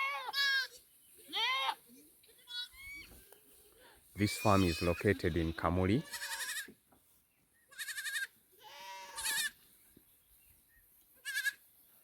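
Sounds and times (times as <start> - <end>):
young goats bleating: 0.0 - 6.8, 7.6 - 9.7, 11.1 - 11.7.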